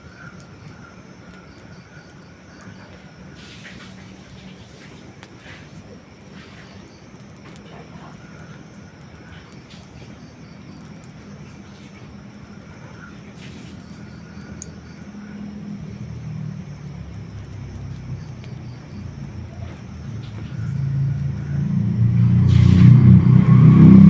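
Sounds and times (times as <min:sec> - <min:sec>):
wood fire crackling and popping: 0:00.0 - 0:24.0
low rumble: 0:14.0 - 0:24.0.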